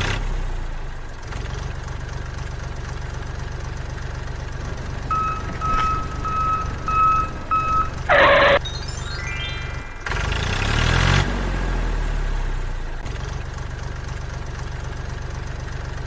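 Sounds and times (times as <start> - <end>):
tractor engine idling: 1.1 - 8.6
reversing beeps: 4.6 - 10.6.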